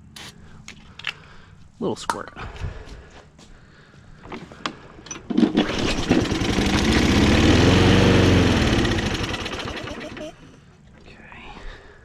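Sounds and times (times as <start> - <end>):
lawn mower engine revving: 5.3 - 10.5.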